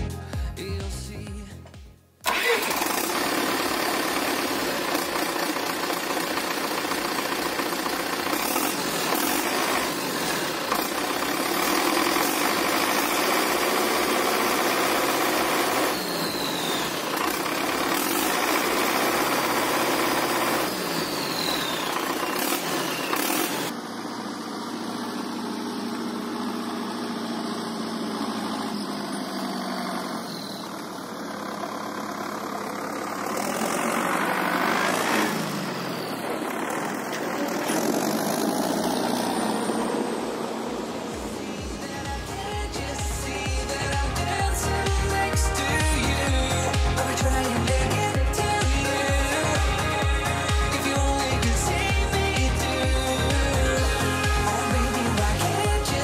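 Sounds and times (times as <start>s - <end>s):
diesel tractor engine running: 0.0s - 56.0s
turbo whistle: 15.9s - 17.4s, 20.9s - 23.5s, 30.2s - 30.9s.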